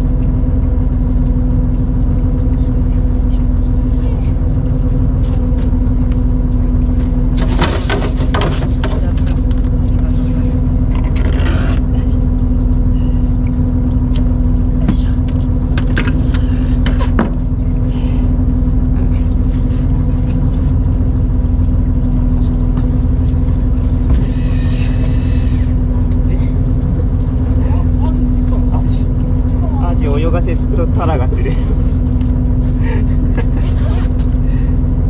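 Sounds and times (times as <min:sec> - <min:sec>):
boat engine humming: 0:00.0 - 0:35.0.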